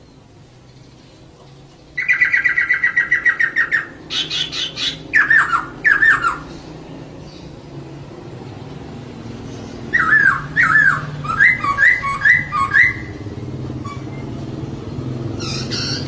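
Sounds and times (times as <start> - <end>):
bird chattering trill call: 2.0 - 6.5, 9.9 - 14.2, 15.4 - 16.0.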